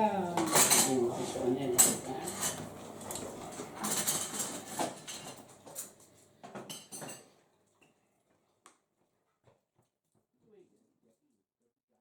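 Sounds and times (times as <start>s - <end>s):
dishes and cutlery clattering: 0.4s - 7.4s.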